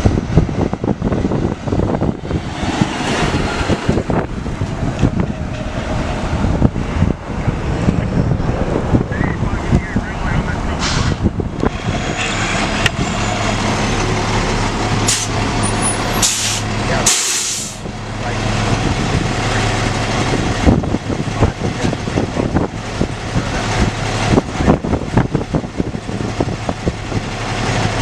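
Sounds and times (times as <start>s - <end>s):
fire engine humming: 0.0s - 28.0s
air brake hisses: 15.1s - 15.3s, 16.2s - 17.8s.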